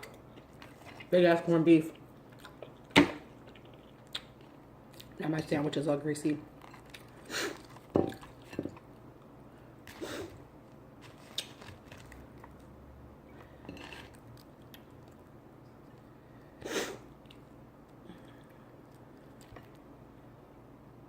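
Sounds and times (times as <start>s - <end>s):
person chewing food: 0.0s - 1.1s, 1.9s - 5.2s, 6.5s - 9.0s, 11.0s - 16.4s, 17.1s - 19.9s.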